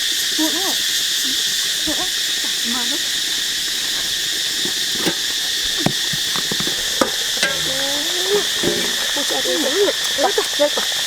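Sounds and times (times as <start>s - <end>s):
cooking utensils clicking: 3.4s - 11.0s.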